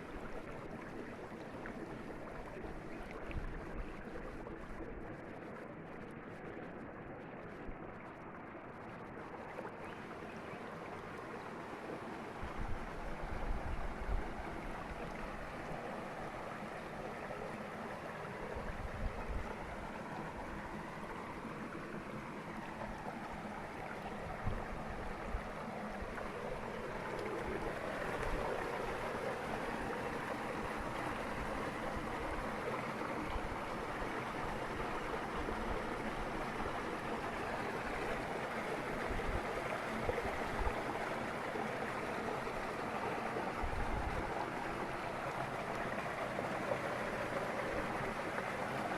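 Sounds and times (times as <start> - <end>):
river water rushing: 19.7 - 48.9.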